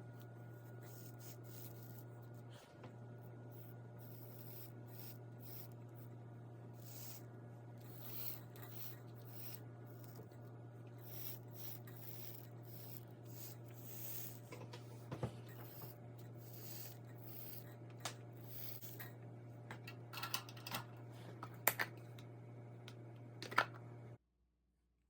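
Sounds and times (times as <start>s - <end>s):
soldering iron scraping bread: 0.0s - 19.2s
steady low hum: 0.0s - 24.2s.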